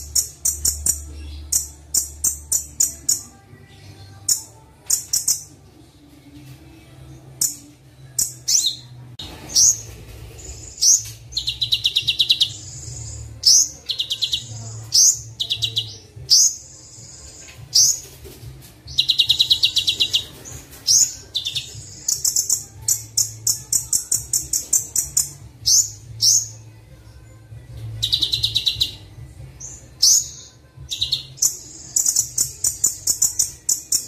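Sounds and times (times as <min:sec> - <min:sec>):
songbird chirps and buzzy trills: 0:00.0 - 0:34.0.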